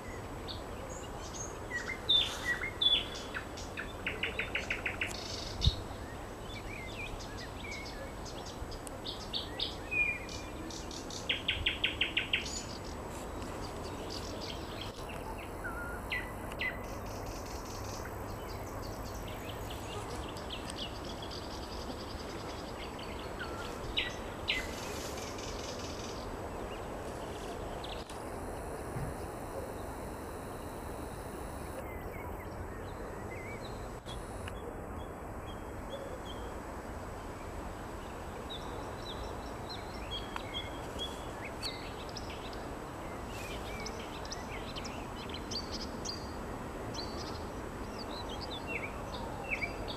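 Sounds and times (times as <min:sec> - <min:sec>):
steady background hiss: 0:00.0 - 0:49.9
nightingale singing: 0:28.1 - 0:32.6.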